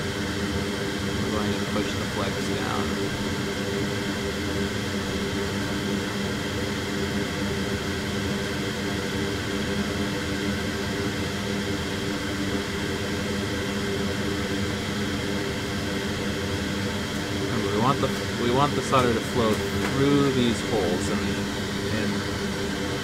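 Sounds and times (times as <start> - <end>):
fan whirring: 0.0 - 23.0
low hum: 0.0 - 23.0.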